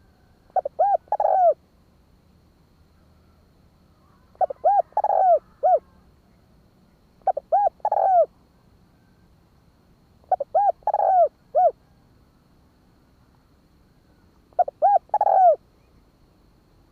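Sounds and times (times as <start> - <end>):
dove cooing: 0.0 - 1.6, 4.0 - 6.0, 7.2 - 8.3, 10.2 - 12.0, 14.5 - 15.6.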